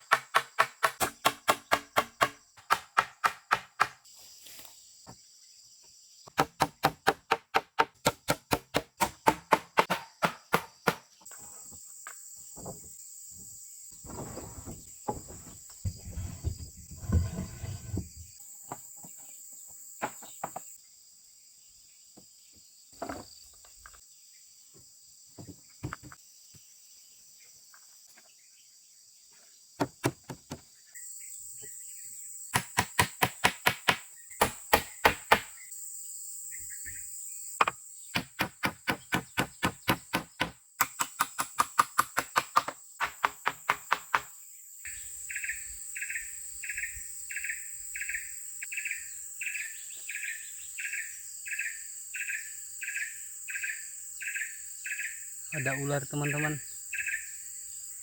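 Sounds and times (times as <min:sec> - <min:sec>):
tool striking wood rapidly: 0:00.0 - 0:04.0, 0:06.4 - 0:11.1, 0:32.6 - 0:35.5, 0:38.2 - 0:44.3.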